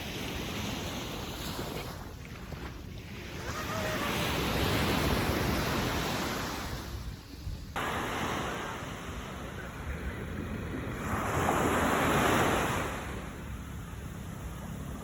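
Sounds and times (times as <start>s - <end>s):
wind on microphone: 0.0s - 13.7s
sea waves washing in: 0.0s - 15.0s.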